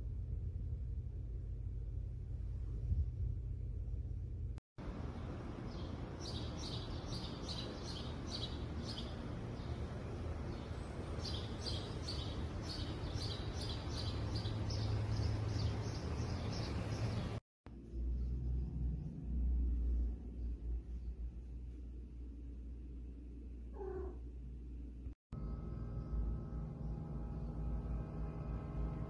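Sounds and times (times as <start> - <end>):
outdoor background hiss: 0.0 - 17.9
bird chirping: 5.2 - 19.2.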